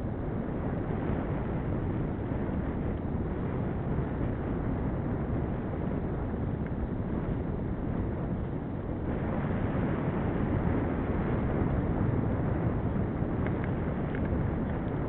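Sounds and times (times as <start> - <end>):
bicycle road noise: 0.0 - 15.0
wind rush on microphone: 0.0 - 15.0
faint ticks: 13.4 - 14.9.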